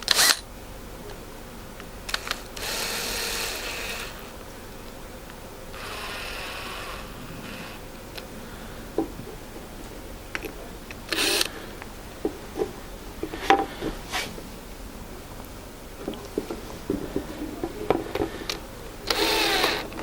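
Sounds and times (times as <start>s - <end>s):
screws rasping into wood: 5.8s - 7.8s, 11.1s - 11.5s, 19.1s - 20.0s
wooden knocks and clicks: 12.2s - 14.0s, 16.0s - 18.6s
short scrape: 13.4s - 14.4s.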